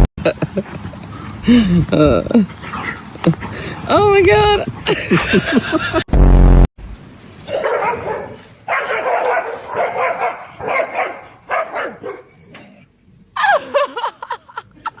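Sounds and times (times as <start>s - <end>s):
dog vocalizing in pitched calls: 7.4s - 12.4s.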